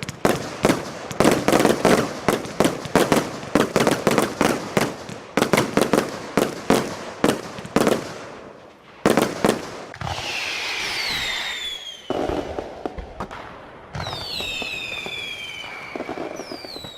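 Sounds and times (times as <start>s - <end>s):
firework shots: 0.0s - 16.9s
firework whistles gliding down: 9.9s - 13.3s, 13.9s - 16.9s.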